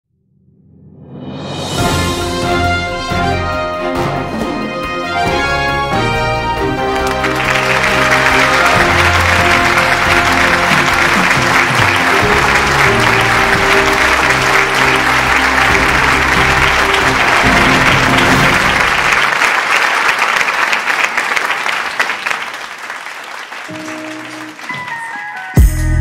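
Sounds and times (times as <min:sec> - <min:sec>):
background music: 0:01.2 - 0:19.4, 0:23.7 - 0:26.0
loud applause: 0:05.9 - 0:25.7.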